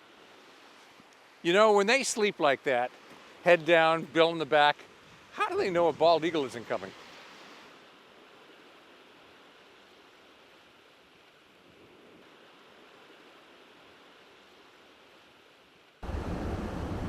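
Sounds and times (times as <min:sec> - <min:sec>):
sea surf on shore: 0:00.0 - 0:17.0
loud low outdoor rumbling: 0:16.0 - 0:17.0.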